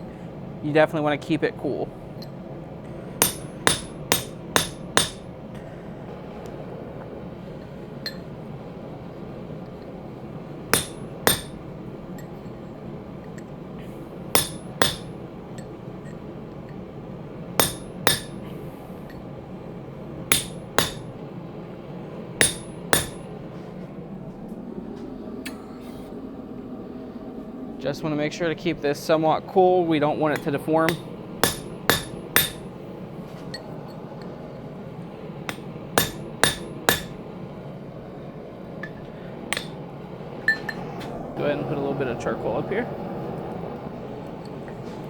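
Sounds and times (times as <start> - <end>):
steady background hum: 0.0 - 45.0
hammer striking steel punch: 3.2 - 5.3, 10.7 - 11.6, 14.3 - 15.2, 17.6 - 18.5, 20.3 - 21.1, 22.4 - 23.3, 30.4 - 32.7, 35.5 - 37.2, 38.8 - 39.8.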